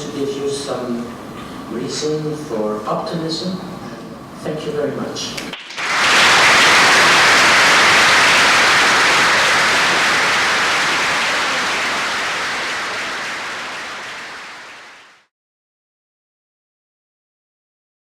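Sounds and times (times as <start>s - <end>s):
audience applauding: 5.5s - 15.3s.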